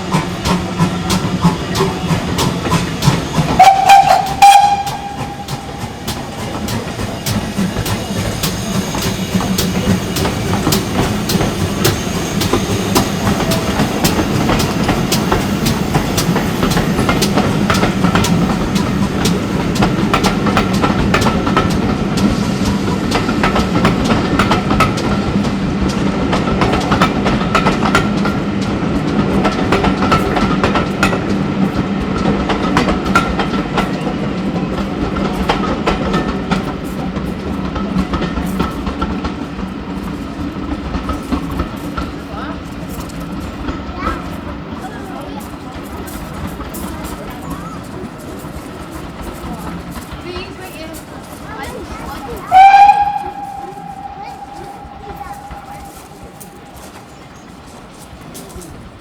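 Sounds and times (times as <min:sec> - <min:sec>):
train wheels clicking over rail joints: 0:00.0 - 0:59.0
faint high ringing tone: 0:53.2 - 0:57.0.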